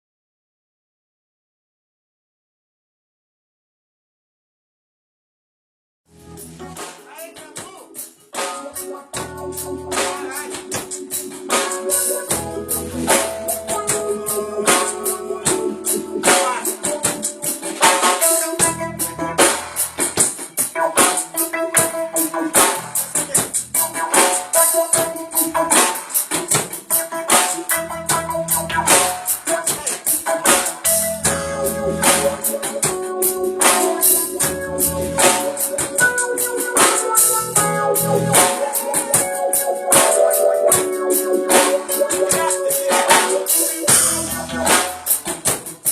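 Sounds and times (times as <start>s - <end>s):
electric bass: 6.1s - 6.8s, 9.1s - 10.6s, 11.5s - 16.5s, 18.6s - 20.3s, 22.5s - 24.0s, 25.2s - 25.8s, 27.7s - 29.4s, 30.8s - 38.5s, 43.9s - 45.2s
sustained keyboard chords: 6.1s - 45.5s
drum kit: 6.1s - 45.9s
hi-hat or shaker rhythm: 6.2s - 45.9s.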